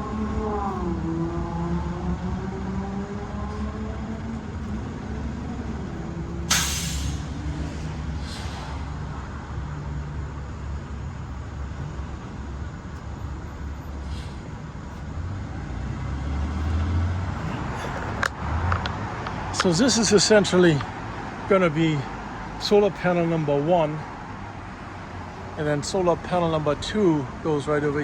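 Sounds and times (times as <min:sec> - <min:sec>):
engine and traffic rumbling: 0:00.0 - 0:28.0
short sharp hiss: 0:06.5 - 0:08.9.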